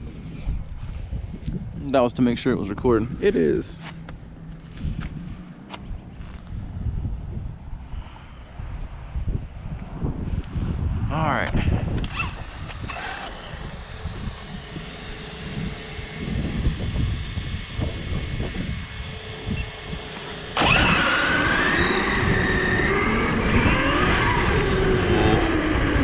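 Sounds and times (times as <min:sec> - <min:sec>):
rc car motor whine: 0:11.8 - 0:26.0.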